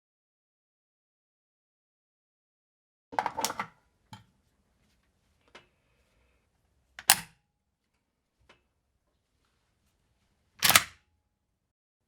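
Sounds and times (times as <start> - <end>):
metallic clicks of rifle parts: 7.0 - 7.3, 10.6 - 11.0.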